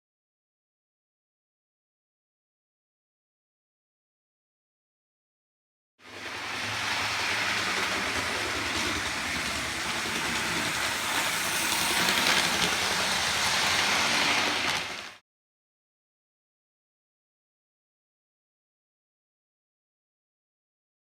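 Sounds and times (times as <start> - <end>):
wheels rattling on rails: 6.0 - 15.2
model train motor whirring: 6.1 - 15.2.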